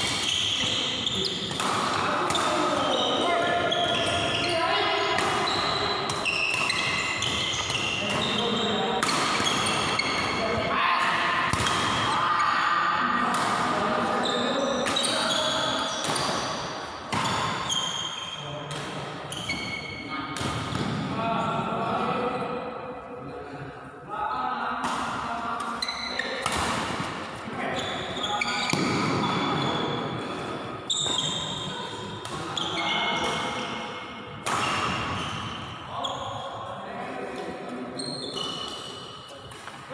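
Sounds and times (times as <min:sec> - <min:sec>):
shoes squeaking on floor: 0:00.1 - 0:01.5, 0:02.4 - 0:04.7, 0:05.4 - 0:10.5, 0:14.2 - 0:16.5, 0:17.2 - 0:18.5, 0:19.3 - 0:20.1, 0:27.6 - 0:30.0, 0:30.9 - 0:31.8, 0:34.6 - 0:36.5, 0:37.9 - 0:39.2
racket hitting shuttlecock: 0:01.4 - 0:04.2, 0:05.2 - 0:08.4, 0:09.0 - 0:10.4, 0:11.0 - 0:12.2, 0:13.2 - 0:13.8, 0:24.8 - 0:27.2, 0:33.2 - 0:35.6, 0:39.4 - 0:39.8.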